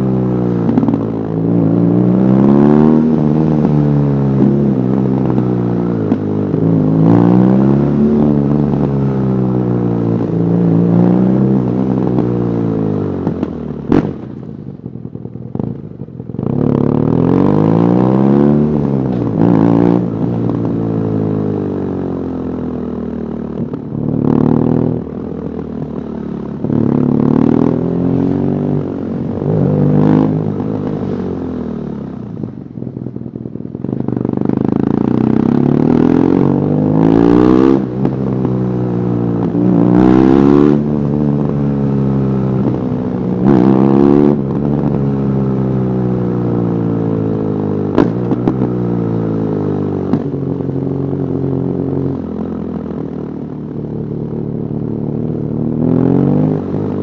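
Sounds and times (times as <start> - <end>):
motorcycle engine accelerating: 0.0 - 57.0
exhaust pop: 13.2 - 15.8, 47.9 - 48.8, 50.0 - 50.5.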